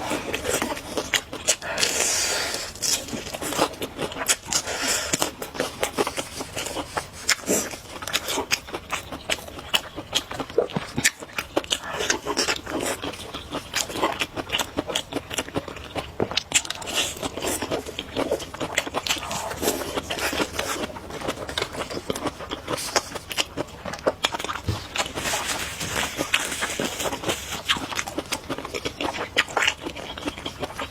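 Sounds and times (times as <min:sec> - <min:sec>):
person chewing: 0:00.0 - 0:30.9.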